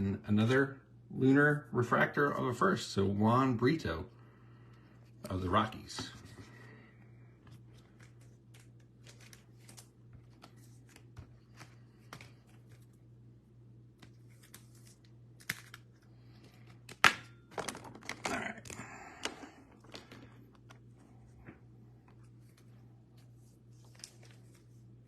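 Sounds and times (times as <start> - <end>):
steady low hum: 0.0 - 25.0
crinkly packaging rustling: 7.4 - 13.0, 14.0 - 21.0, 22.1 - 25.0.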